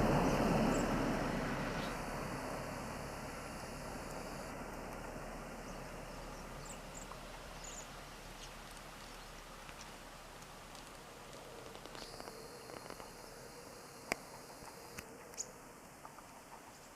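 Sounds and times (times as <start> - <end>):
steady background hiss: 0.0 - 16.9
small birds chirping: 3.9 - 15.6
light ticks: 8.4 - 13.1.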